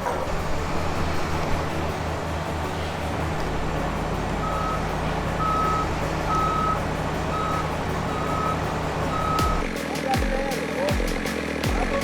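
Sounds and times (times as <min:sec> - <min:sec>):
heavy machine engine running: 0:00.0 - 0:12.0
reversing alarm beeping: 0:05.4 - 0:09.6.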